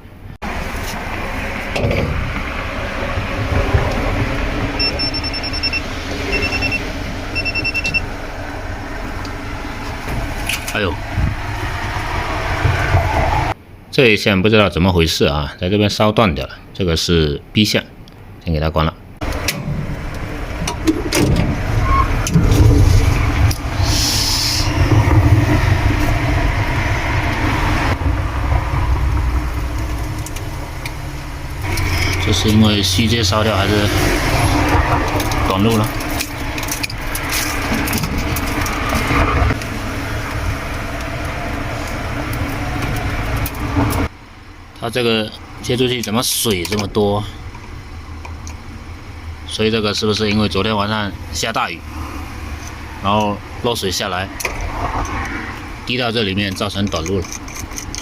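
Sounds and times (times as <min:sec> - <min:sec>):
low background rumble: 0:00.0 - 0:14.0, 0:19.0 - 0:58.0
rapid electronic beeping: 0:04.8 - 0:08.1.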